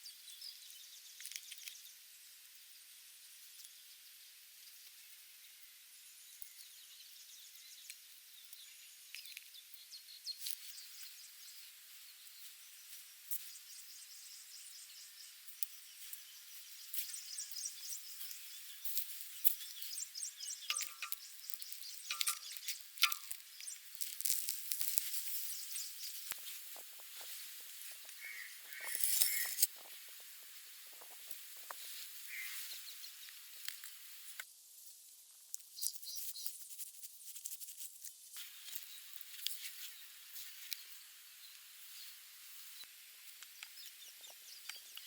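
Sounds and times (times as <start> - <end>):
faint hiss: 0.0 - 45.0
light crackles and clicks: 15.5 - 34.5, 37.4 - 45.0
short bird calls: 28.2 - 29.6, 32.2 - 32.8.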